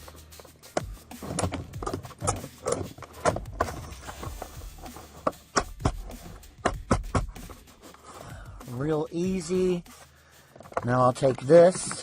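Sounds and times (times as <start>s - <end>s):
plastic trim knocking and clicking: 5.2s - 7.4s.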